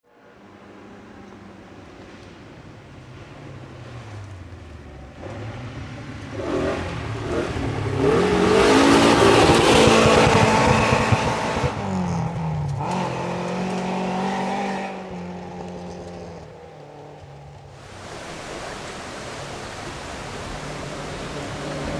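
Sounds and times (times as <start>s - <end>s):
rally car engine revving: 5.0s - 17.2s, 17.8s - 21.9s.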